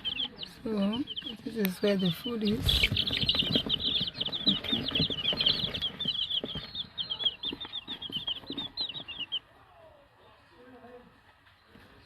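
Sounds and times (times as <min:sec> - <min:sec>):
chicks peeping: 0:00.0 - 0:09.5.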